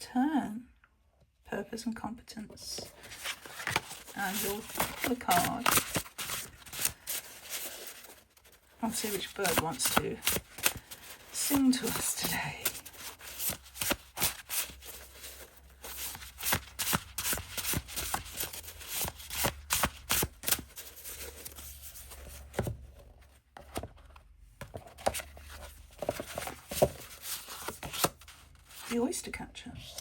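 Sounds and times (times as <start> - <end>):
cards being shuffled: 2.8 - 22.7, 24.6 - 29.0.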